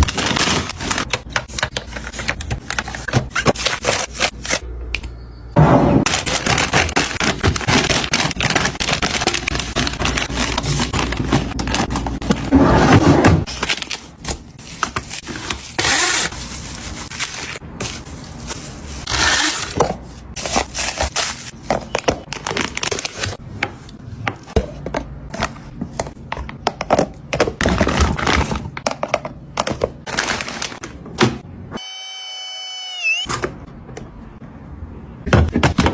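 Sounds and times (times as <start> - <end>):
food packages rustling and clattering: 0.0 - 4.6, 6.1 - 19.1, 19.7 - 31.0.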